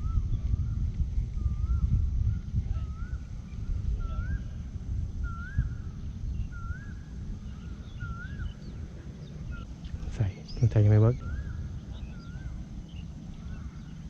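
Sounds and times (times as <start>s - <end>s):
low rumble: 0.0s - 14.0s
bird whistling call: 1.4s - 8.8s, 10.5s - 14.0s.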